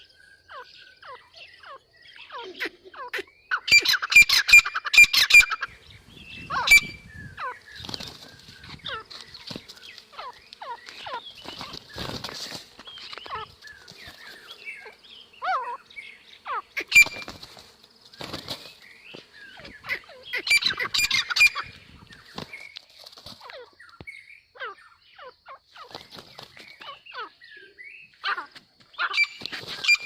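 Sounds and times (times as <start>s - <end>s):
birds squawking: 0.0s - 23.9s, 24.6s - 30.0s
wings flapping and scuffling: 6.4s - 15.0s, 16.5s - 24.0s, 25.7s - 27.0s, 28.2s - 30.0s.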